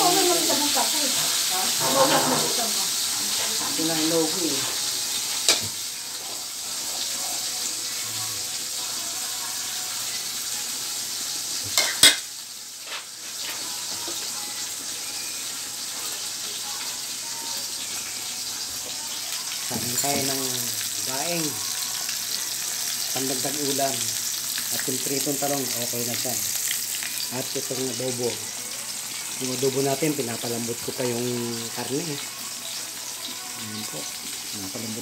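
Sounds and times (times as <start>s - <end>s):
food sizzling in oil: 0.0s - 35.0s.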